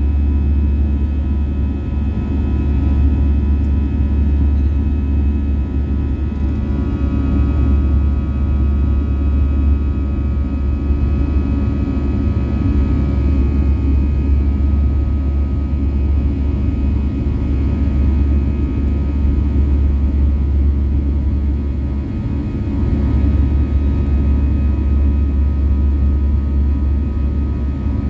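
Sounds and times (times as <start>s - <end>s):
aircraft cabin low rumble: 0.0s - 28.0s.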